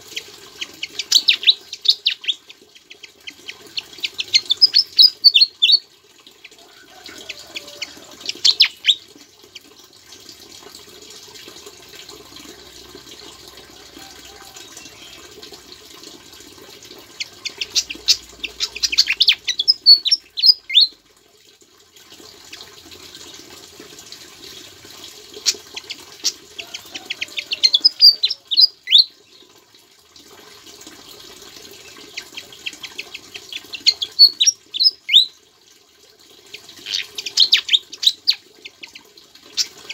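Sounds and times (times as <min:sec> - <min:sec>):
bird singing rapid chirps: 0:00.6 - 0:05.8, 0:07.2 - 0:09.0, 0:14.6 - 0:15.3, 0:17.2 - 0:20.9, 0:27.2 - 0:29.4, 0:32.1 - 0:35.3, 0:36.8 - 0:39.0.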